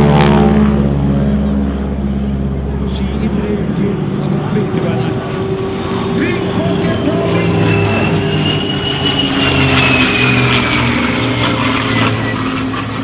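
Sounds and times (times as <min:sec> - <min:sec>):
propeller aircraft flying by: 0:00.0 - 0:13.0.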